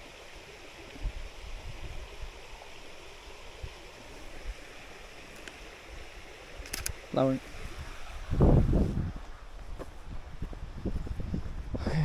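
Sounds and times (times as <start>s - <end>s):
river flowing: 0.0s - 8.6s.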